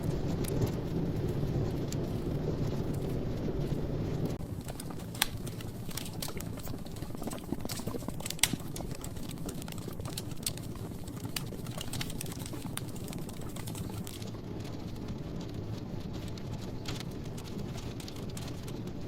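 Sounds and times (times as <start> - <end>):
burning wood crackling and popping: 0.0 - 19.0
fire flames rumbling: 0.0 - 19.0.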